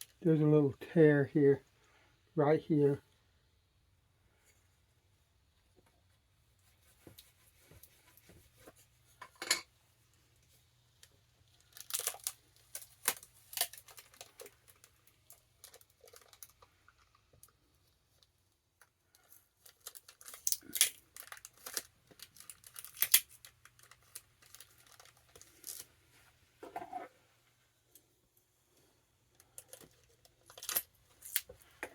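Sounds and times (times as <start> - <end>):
packing tape ripping and crackling: 11.5 - 17.1, 19.1 - 25.9, 29.4 - 31.6.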